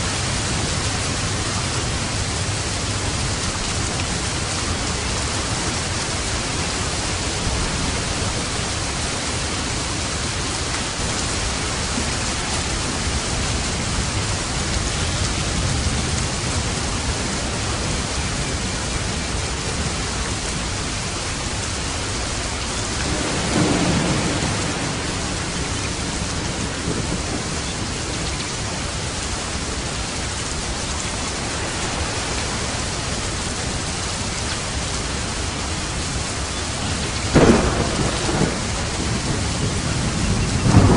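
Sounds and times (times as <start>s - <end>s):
heavy rain falling: 0.0s - 40.9s
low rumble of thunder: 0.0s - 40.9s.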